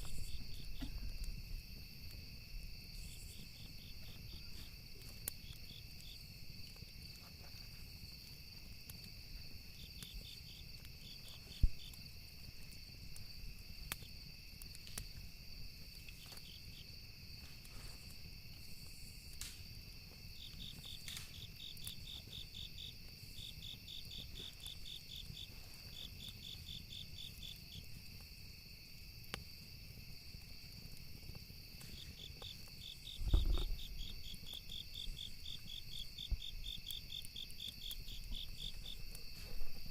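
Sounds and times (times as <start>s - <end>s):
campfire wood crackling: 0.0s - 39.9s
insects chirping: 0.0s - 39.9s
low thump: 33.2s - 33.8s.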